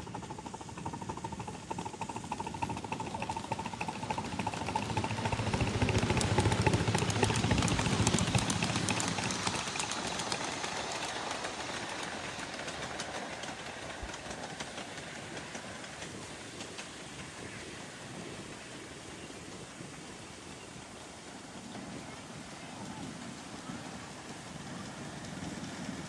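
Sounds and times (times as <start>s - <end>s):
model train wheels clicking: 0.0s - 26.0s.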